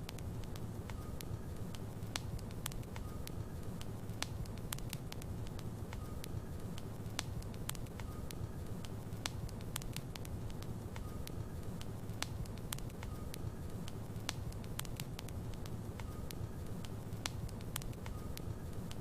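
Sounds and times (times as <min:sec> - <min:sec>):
fire crackling and popping: 0:00.0 - 0:19.0
fire rumbling: 0:00.0 - 0:19.0.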